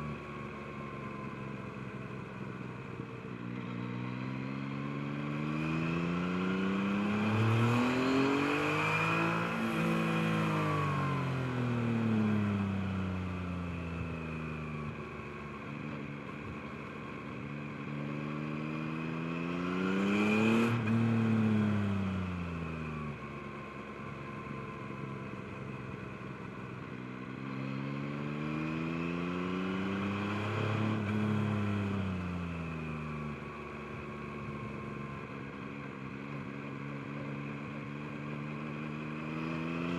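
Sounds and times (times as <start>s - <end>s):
motorcycle engine revving: 3.6s - 12.6s.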